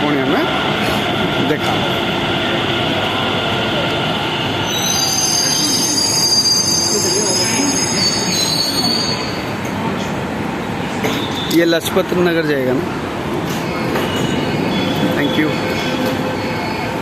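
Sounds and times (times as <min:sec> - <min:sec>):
metro train rumble: 0:00.0 - 0:17.0
high-pitched wheel squeal: 0:04.6 - 0:09.4.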